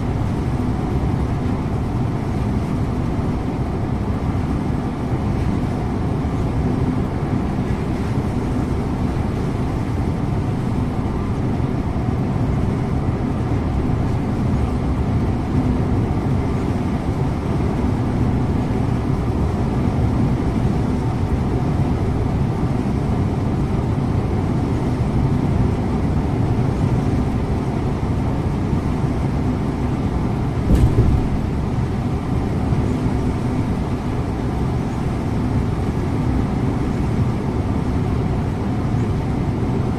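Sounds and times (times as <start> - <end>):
bus engine drone and road rumble: 0.0 - 39.9
brief thump: 30.7 - 31.5.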